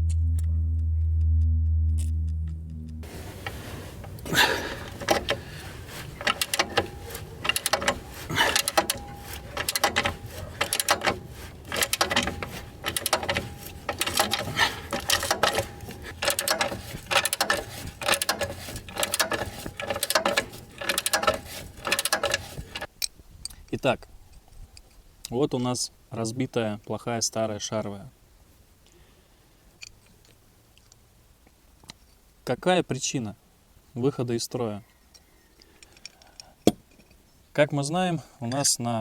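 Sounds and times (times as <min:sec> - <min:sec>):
mechanical clicking and clattering: 0:03.0 - 0:22.9.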